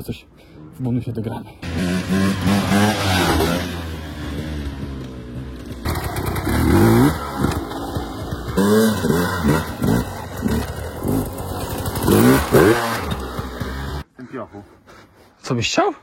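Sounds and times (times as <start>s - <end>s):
dirt bike engine revving: 1.6s - 14.0s.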